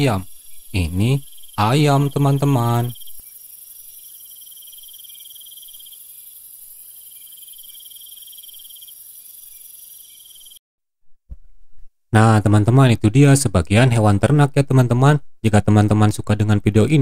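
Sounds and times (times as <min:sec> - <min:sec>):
constant high hiss: 0:00.0 - 0:10.6
crickets chirping: 0:00.0 - 0:10.6.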